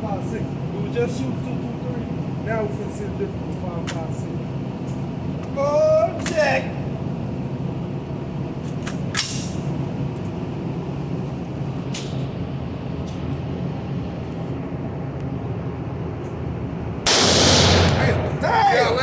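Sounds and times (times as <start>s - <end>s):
machinery hum: 9.4s - 19.0s.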